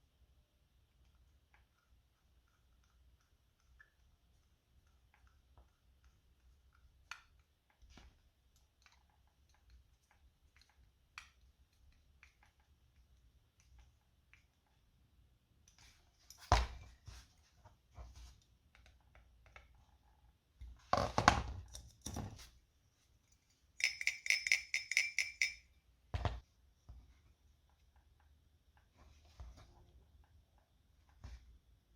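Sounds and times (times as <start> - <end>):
metal parts clicking and clinking: 23.8 - 25.7.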